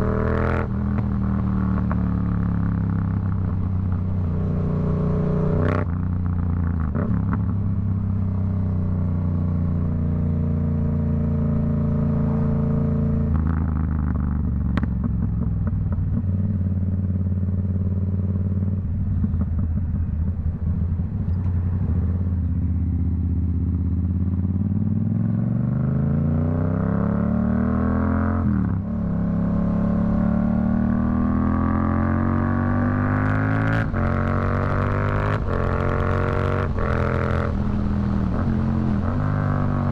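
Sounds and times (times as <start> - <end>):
motorcycle engine: 0.0 - 39.9
exhaust crackling off-throttle: 13.1 - 24.6.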